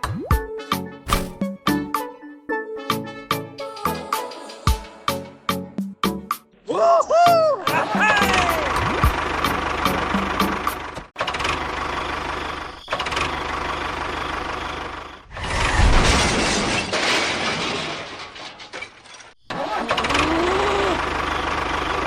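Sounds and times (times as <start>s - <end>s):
low thump: 1.1s - 1.5s.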